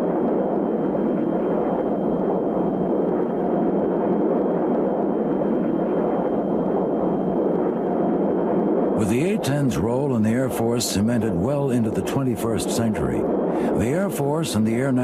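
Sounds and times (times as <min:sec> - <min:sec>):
faint high whine: 0:00.0 - 0:15.0
jet engines rushing: 0:00.0 - 0:15.0.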